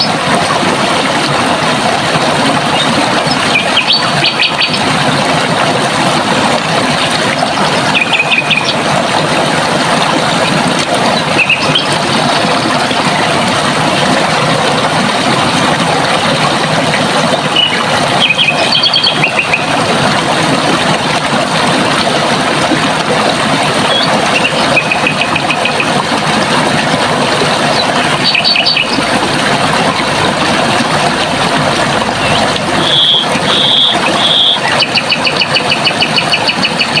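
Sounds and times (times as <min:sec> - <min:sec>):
water rushing: 0:00.0 - 0:37.0.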